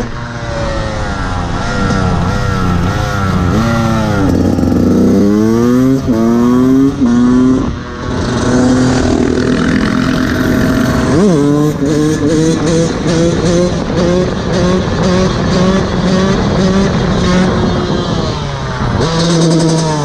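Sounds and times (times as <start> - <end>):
dirt bike engine accelerating: 0.0 - 20.0.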